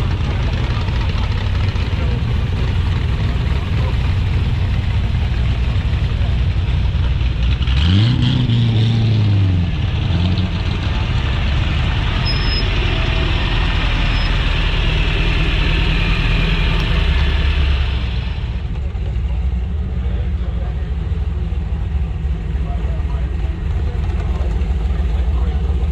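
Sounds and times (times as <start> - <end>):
engine revving: 0.0 - 19.1
car engine running: 0.0 - 25.9.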